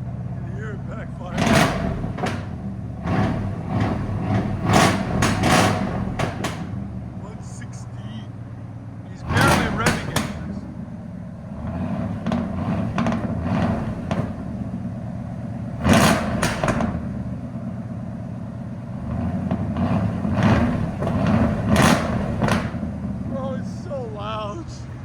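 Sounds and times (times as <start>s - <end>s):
engine idling with throttle blips: 0.0s - 25.0s
exhaust backfire pops: 1.3s - 7.1s, 9.3s - 10.8s, 11.4s - 23.4s.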